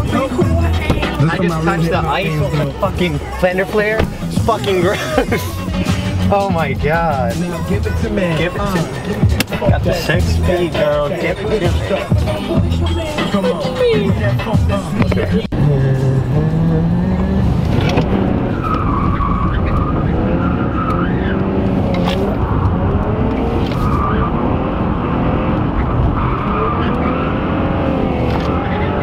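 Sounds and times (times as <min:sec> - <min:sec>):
car engine revving: 0:00.0 - 0:29.0
tyres squealing: 0:17.8 - 0:25.0.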